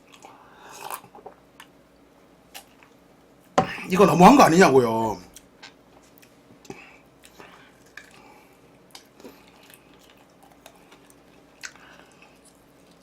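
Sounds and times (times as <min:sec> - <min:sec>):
person chewing food: 0:00.0 - 0:01.8, 0:02.5 - 0:03.0, 0:05.3 - 0:13.0.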